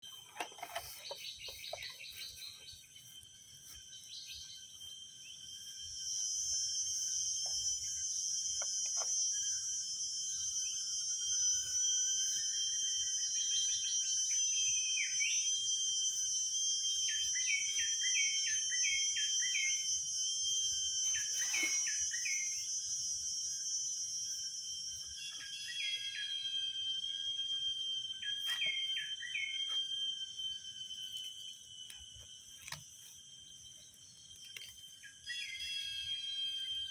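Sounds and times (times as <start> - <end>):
bird chirping: 0.0 - 11.0
insects droning: 0.0 - 36.9.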